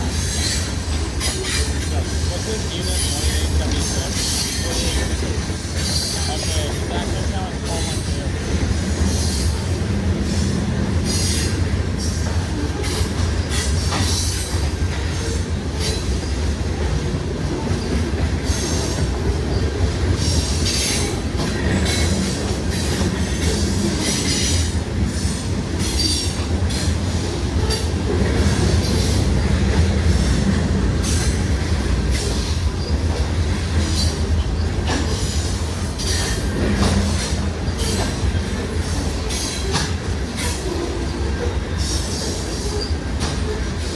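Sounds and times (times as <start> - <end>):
train wheels rumbling on rail: 0.0 - 43.9.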